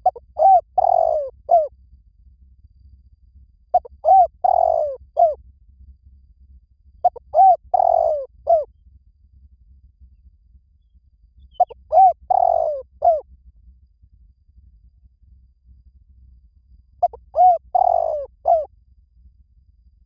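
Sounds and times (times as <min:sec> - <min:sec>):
dove cooing: 0:00.0 - 0:01.7, 0:03.8 - 0:05.4, 0:07.0 - 0:08.7, 0:11.6 - 0:13.2, 0:17.0 - 0:18.7.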